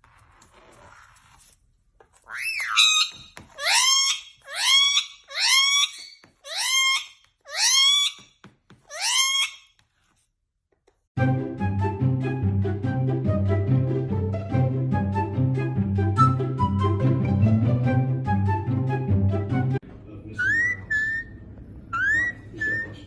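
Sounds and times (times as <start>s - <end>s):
music: 11.2s - 19.8s.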